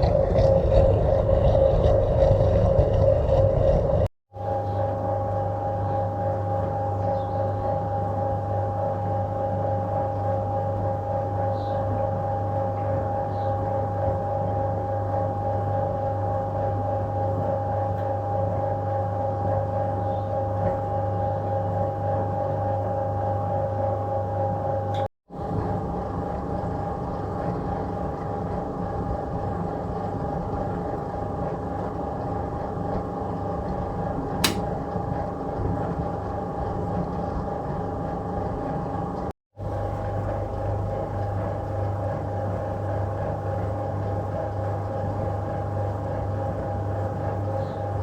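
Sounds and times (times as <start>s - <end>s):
washing machine humming: 0.0s - 48.0s.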